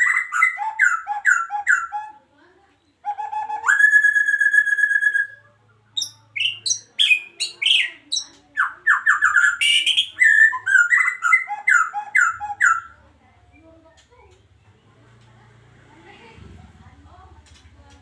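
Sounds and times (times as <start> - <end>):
bird singing whistled notes: 3.1 - 5.4.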